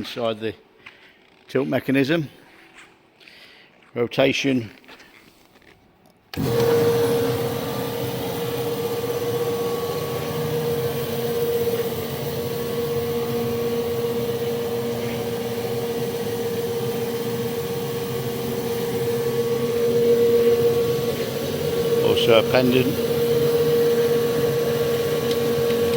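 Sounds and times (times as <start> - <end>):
electric motor and gearbox whine: 6.3 - 25.9.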